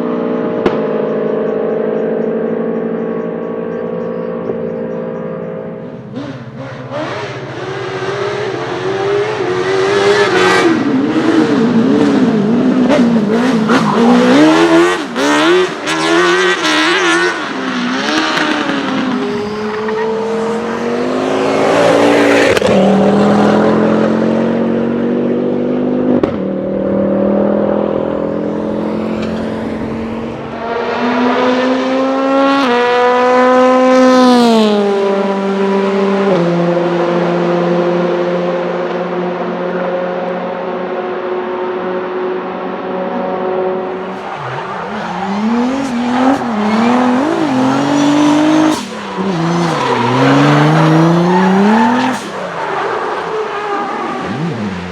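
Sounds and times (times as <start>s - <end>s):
race car engine revving: 0.0s - 54.9s.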